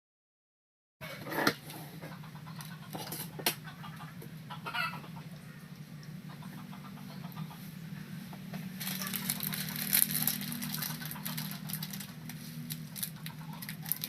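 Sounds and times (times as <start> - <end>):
steady low hum: 1.0 - 14.0
dense crackling and clicking: 8.8 - 14.0.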